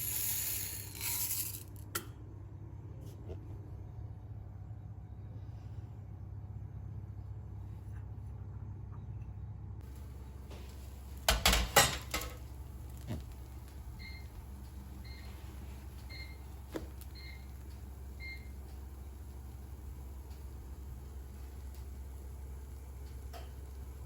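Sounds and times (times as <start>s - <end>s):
kitchen appliance beeping: 13.4s - 20.6s.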